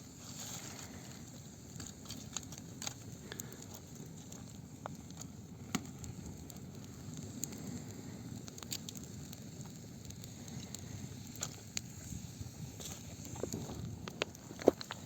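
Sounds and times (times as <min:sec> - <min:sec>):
burning wood crackles and pops: 0:00.0 - 0:15.0
campfire flames rumble: 0:00.0 - 0:15.0.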